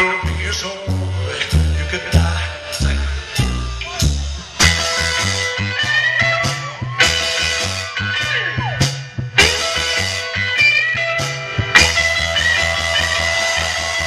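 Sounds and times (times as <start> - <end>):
electric guitar bending notes: 0.0 - 14.0
rock band playing: 0.0 - 14.0.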